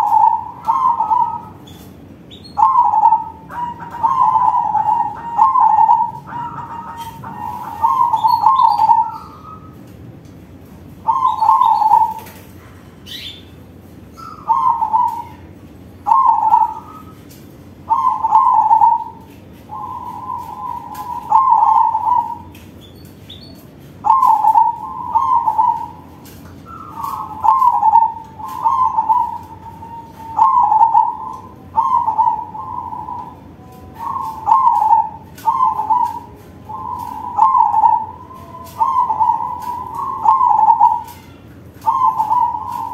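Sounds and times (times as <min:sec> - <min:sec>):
dove cooing loudly: 0:00.0 - 0:01.7, 0:02.4 - 0:09.8, 0:11.0 - 0:12.4, 0:14.2 - 0:17.2, 0:17.8 - 0:22.5, 0:24.0 - 0:42.9.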